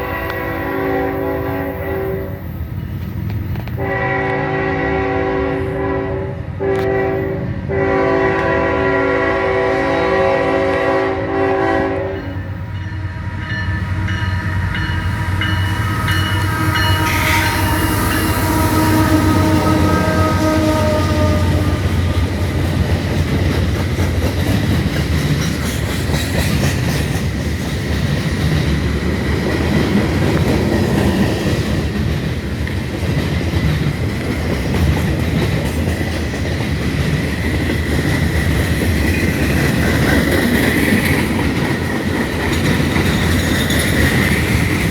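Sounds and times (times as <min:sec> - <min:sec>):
train horn chord: 0:00.0 - 0:02.4, 0:03.8 - 0:22.5
diesel train rumbling past: 0:00.0 - 0:44.9
wheels clacking over rail joints: 0:16.8 - 0:44.9.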